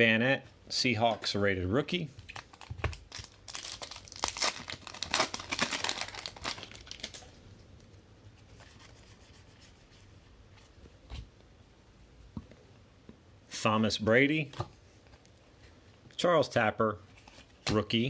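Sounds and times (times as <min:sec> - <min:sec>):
wrapper tearing and crinkling: 0:02.3 - 0:07.4.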